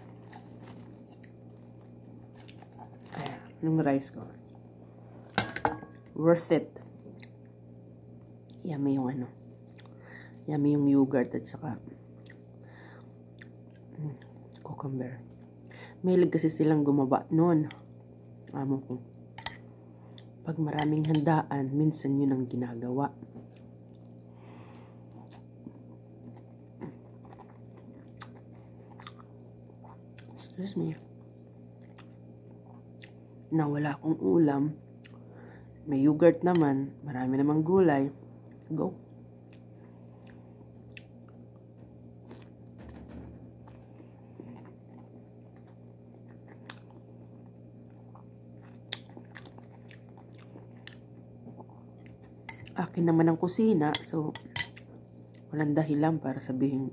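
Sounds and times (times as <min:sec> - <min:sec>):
person chewing: 0:00.0 - 0:03.4, 0:09.4 - 0:10.0, 0:23.4 - 0:30.4, 0:31.0 - 0:33.5, 0:35.0 - 0:35.2, 0:39.4 - 0:42.6, 0:43.6 - 0:52.8
steady low hum: 0:00.0 - 0:56.9
small mouth clicks and smacks: 0:09.4 - 0:10.0, 0:39.5 - 0:41.4, 0:47.9 - 0:52.8.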